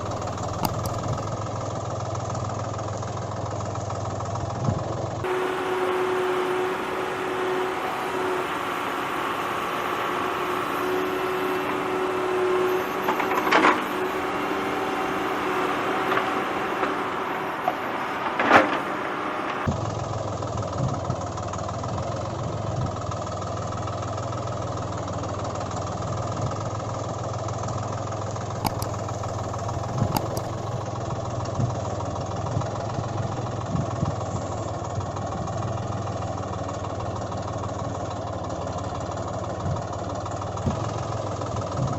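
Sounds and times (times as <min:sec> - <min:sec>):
engine running: 0:00.0 - 0:41.9
sharp clicks: 0:00.4 - 0:01.1, 0:28.6 - 0:29.1, 0:30.0 - 0:30.6.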